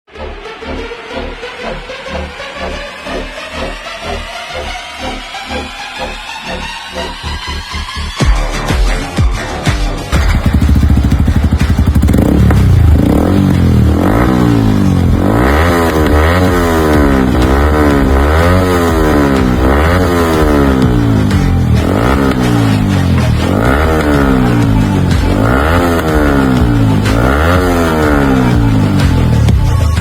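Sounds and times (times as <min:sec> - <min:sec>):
motorcycle engine revving: 0:10.1 - 0:30.0.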